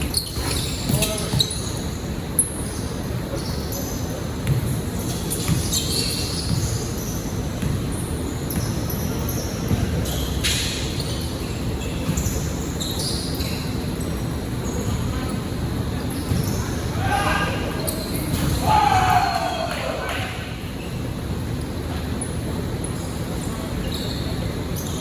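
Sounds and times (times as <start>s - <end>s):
shoe squeaks: 0.0s - 18.6s, 22.1s - 25.0s
basketball bouncing: 4.4s - 4.8s, 7.6s - 7.9s.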